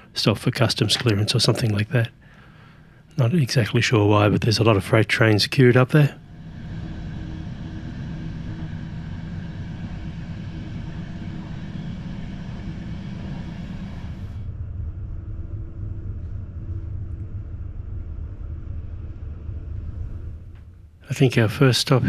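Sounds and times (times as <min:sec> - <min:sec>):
passenger train rumbling: 0:03.2 - 0:15.0.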